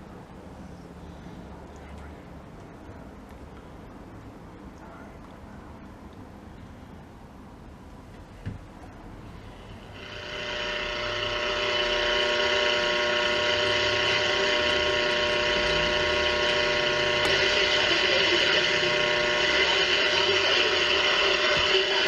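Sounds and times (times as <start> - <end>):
steady radio tones: 9.4 - 22.0
radio static hiss: 9.8 - 22.0.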